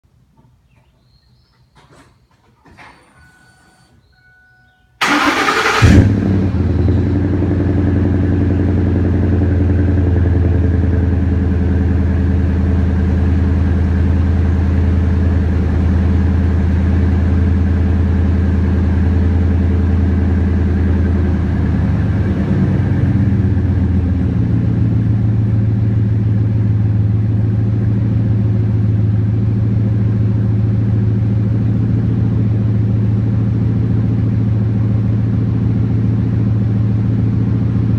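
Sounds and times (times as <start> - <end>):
truck engine idling: 5.0 - 37.9.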